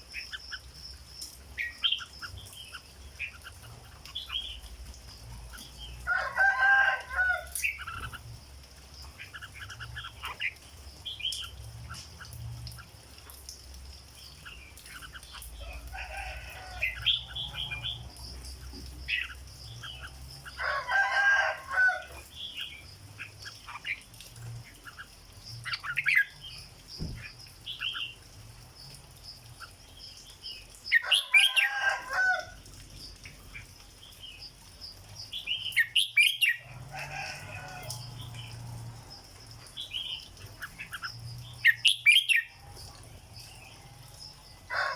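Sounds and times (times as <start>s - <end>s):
bird chirping: 0.0s - 12.9s, 39.6s - 44.4s.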